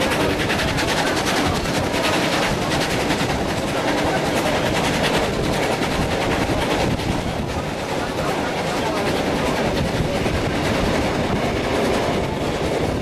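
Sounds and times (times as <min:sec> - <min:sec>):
steam locomotive exhaust beats: 0:00.0 - 0:13.0
train rumble: 0:00.0 - 0:13.0.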